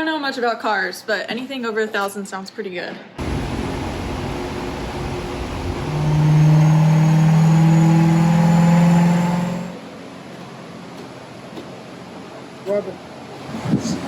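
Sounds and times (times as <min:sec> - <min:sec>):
car engine running: 0:03.2 - 0:09.8.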